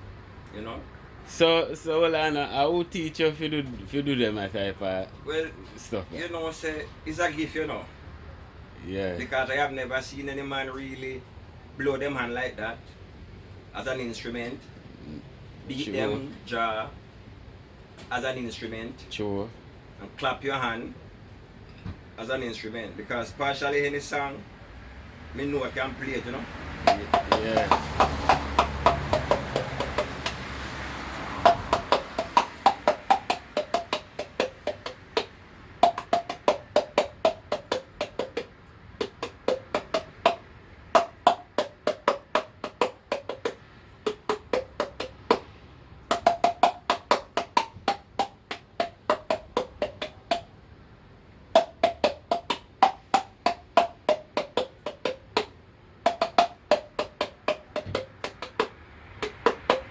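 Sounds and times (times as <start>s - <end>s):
fingers knocking on jaw melody: 26.8s - 50.6s, 51.5s - 59.9s.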